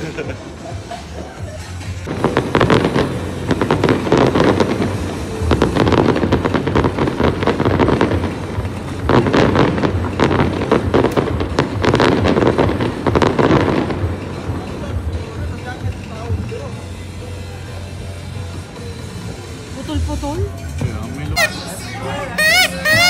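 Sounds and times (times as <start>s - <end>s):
fireworks crackling and popping: 0.0s - 23.0s
firework booms: 2.1s - 14.7s.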